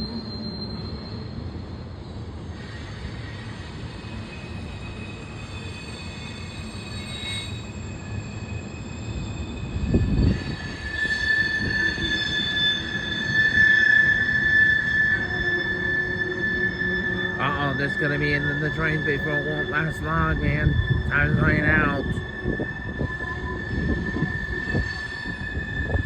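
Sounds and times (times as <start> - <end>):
high-pitched wheel squeal: 0.0 - 26.0
freight train rumbling past: 16.4 - 26.0.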